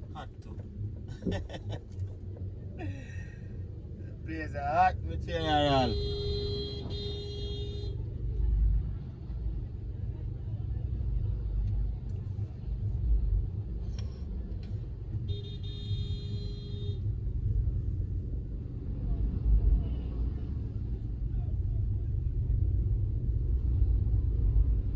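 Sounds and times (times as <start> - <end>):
street traffic rumble: 0.0 - 24.9
car horn blast: 5.6 - 8.0, 15.3 - 17.0.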